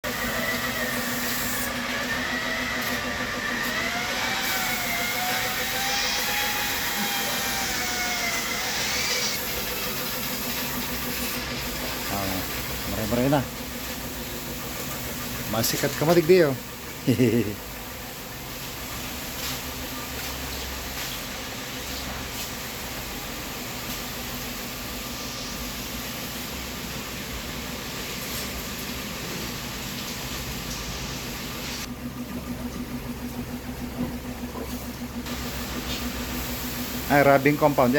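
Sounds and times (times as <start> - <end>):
polishing machine hissing on paint: 0.1 - 15.7, 16.7 - 17.6, 22.2 - 28.6, 35.3 - 37.9
power polisher motor whirring: 1.7 - 9.4.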